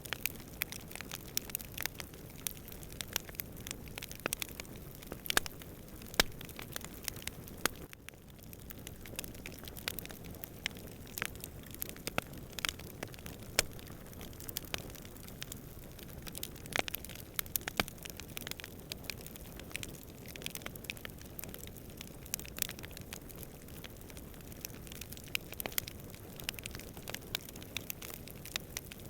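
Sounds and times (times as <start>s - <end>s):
campfire crackling and popping: 0.0s - 29.0s
low rushing fire: 0.2s - 18.8s.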